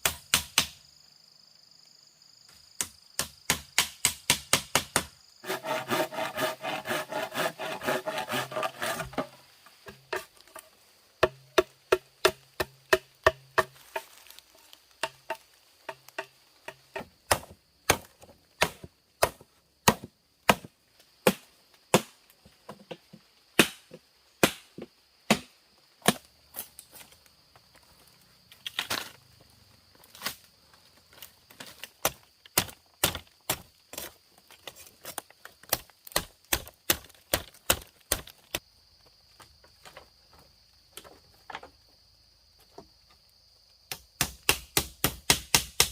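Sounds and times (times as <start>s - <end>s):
blade chopping wood: 2.8s - 10.4s, 11.2s - 14.4s, 15.0s - 22.1s, 23.6s - 26.3s, 31.7s - 34.1s, 35.0s - 38.6s, 43.9s - 45.9s.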